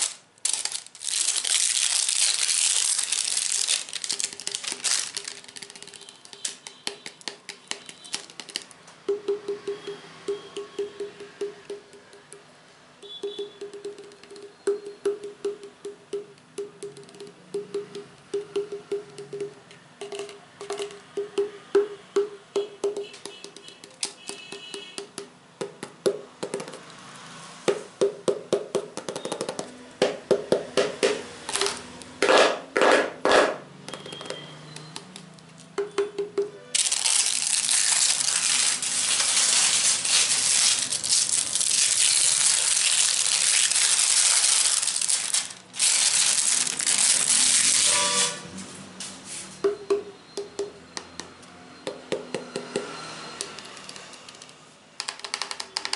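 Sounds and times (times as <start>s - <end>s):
tapping on hollow object: 5.7s - 26.8s, 35.8s - 36.6s.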